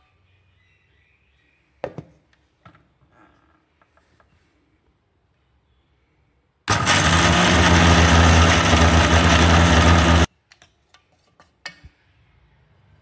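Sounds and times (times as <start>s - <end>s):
mixer grinder motor humming: 6.7s - 10.3s.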